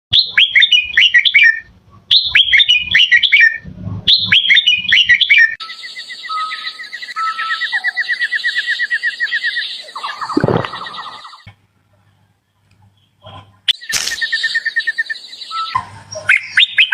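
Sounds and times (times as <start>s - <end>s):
bird whistled song: 0.1s - 11.5s, 13.7s - 16.9s
bird rapid trill: 4.1s - 11.4s.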